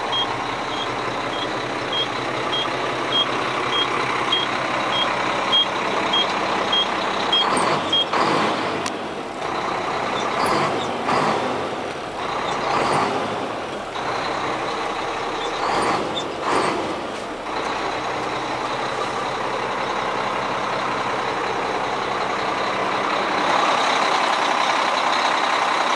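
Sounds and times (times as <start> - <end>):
reversing alarm beeping: 0.0 - 8.2
diesel truck engine running: 0.0 - 25.9.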